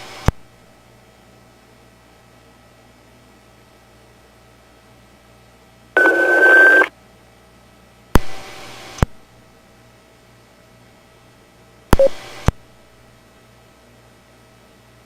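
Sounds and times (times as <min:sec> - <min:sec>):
low radio hum: 0:06.0 - 0:06.9, 0:11.9 - 0:12.7
radio noise burst with beep: 0:06.0 - 0:06.9, 0:12.0 - 0:12.2.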